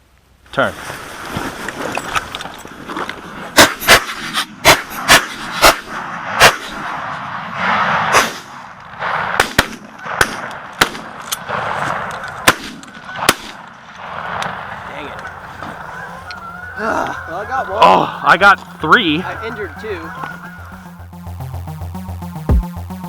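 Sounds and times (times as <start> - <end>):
shotgun shots: 3.6 - 15.9
geese honking: 12.0 - 21.1.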